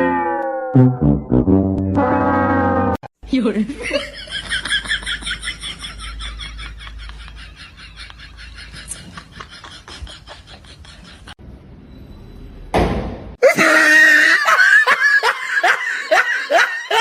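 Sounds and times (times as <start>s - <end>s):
loud laughter: 3.8s - 11.4s, 13.4s - 17.0s.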